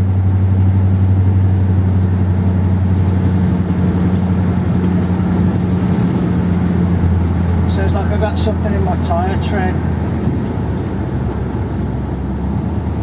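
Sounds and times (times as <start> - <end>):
car engine running: 0.0 - 13.0
road noise: 0.0 - 13.0.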